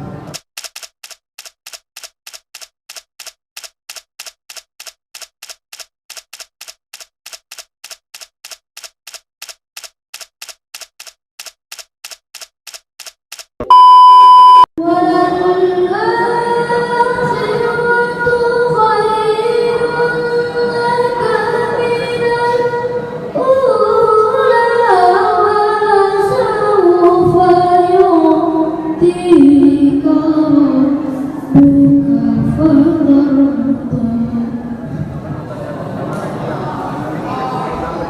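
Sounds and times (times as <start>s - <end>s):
loud steady beep: 13.6s - 14.7s.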